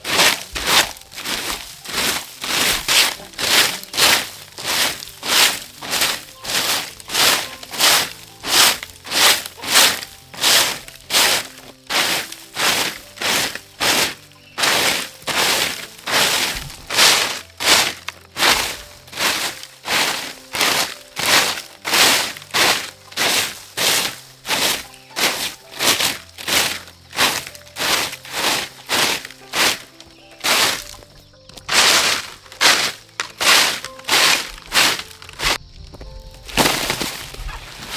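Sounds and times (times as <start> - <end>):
dry corn stalks crunching: 0.0 - 37.9
soft background music: 0.0 - 37.9.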